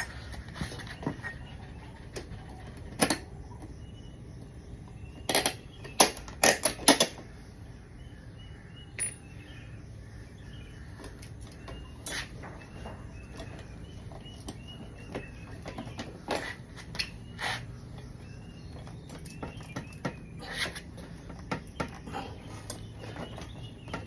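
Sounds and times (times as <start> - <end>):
birds chirping faintly: 0.0 - 24.0
metallic clinks and knocks: 9.0 - 9.5.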